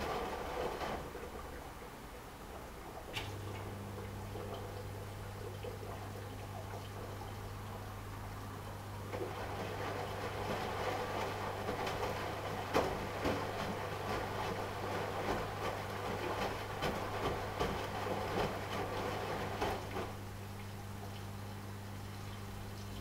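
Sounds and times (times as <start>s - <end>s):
washing machine drum turning: 0.0s - 1.8s, 9.0s - 20.4s
laundry and water tumbling: 0.0s - 23.0s.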